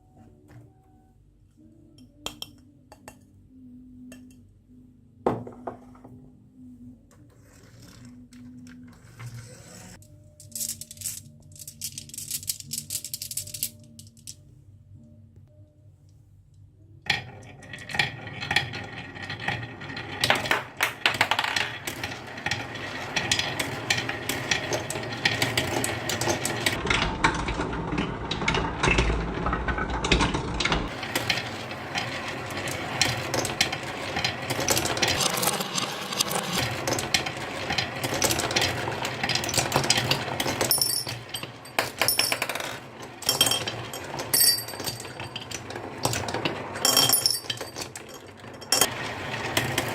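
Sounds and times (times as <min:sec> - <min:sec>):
marbles clattering down a track: 0:10.4 - 0:14.4, 0:17.1 - 0:49.9.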